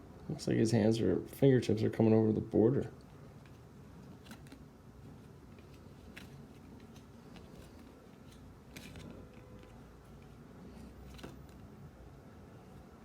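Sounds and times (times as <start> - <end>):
trading cards clicking: 3.4 - 4.6, 5.5 - 10.3.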